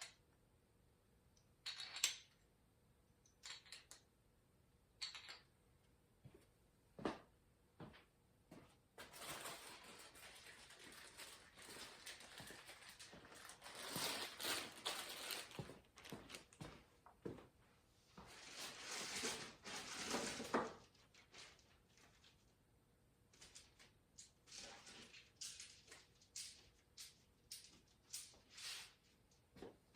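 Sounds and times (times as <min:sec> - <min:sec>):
packaging rustling: 0:09.0 - 0:16.6.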